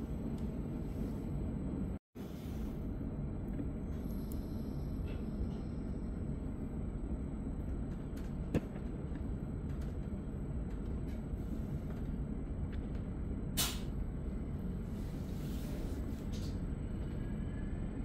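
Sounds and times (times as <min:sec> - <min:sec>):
train interior rumble: 0:00.0 - 0:18.0
brief sharp hiss: 0:13.6 - 0:13.9.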